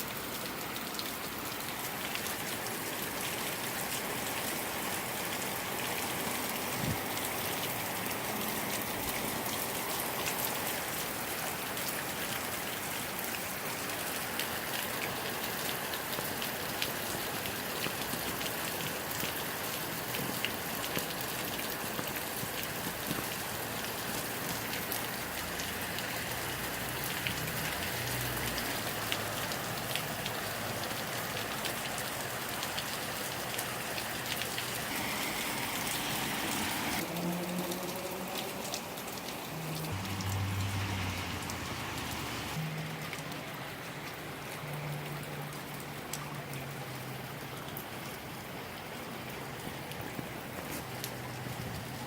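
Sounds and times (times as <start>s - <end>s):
heavy rain: 0.0s - 52.0s
raindrops ticking on surfaces: 0.0s - 52.0s.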